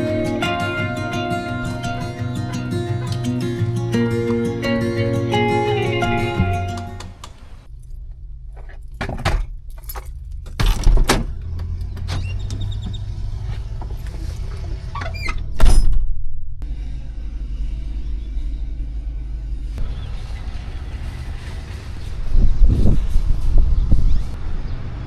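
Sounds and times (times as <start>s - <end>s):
vehicle rumble: 0.0s - 25.0s
knocks and clunks: 8.6s - 16.1s.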